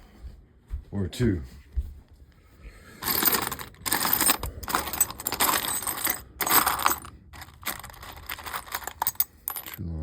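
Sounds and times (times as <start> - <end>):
metal screws clinking and rattling: 3.0 - 9.9.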